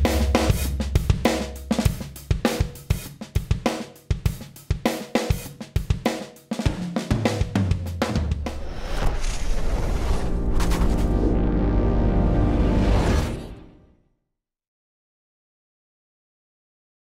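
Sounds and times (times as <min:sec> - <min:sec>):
low bass: 0:00.0 - 0:01.9, 0:10.3 - 0:13.2
drum kit groove: 0:00.0 - 0:08.8.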